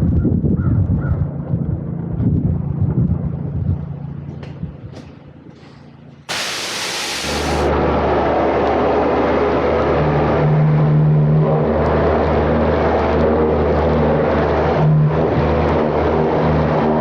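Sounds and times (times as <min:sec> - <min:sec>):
pressure washer engine hum: 0:06.3 - 0:07.7
water spray hissing: 0:06.3 - 0:07.7.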